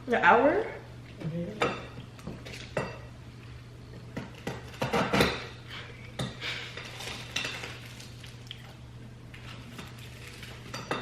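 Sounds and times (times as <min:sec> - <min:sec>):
cutlery clinking on a dish: 0:04.2 - 0:05.5, 0:10.6 - 0:11.0.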